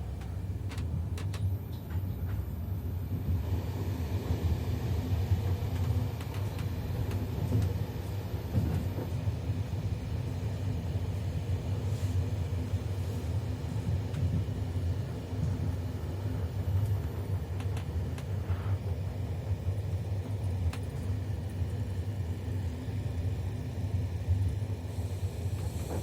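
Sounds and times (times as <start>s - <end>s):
train rumbling on track: 0.0s - 26.0s
faint track clicks: 0.2s - 2.4s, 5.6s - 7.8s.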